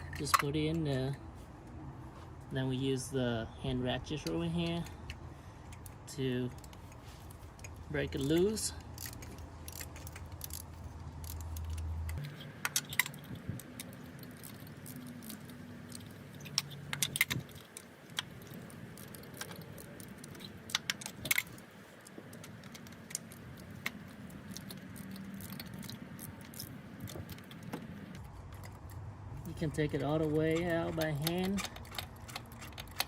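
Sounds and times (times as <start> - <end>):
hand ratchet clicking: 7.6 - 29.0, 30.1 - 33.0.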